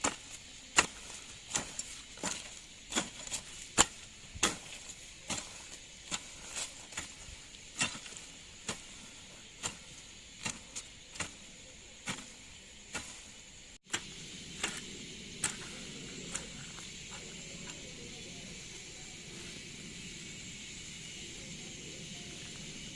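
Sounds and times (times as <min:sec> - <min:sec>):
sharp chopping strikes: 0:00.0 - 0:06.3, 0:13.9 - 0:16.8
steady background hiss: 0:00.0 - 0:22.9.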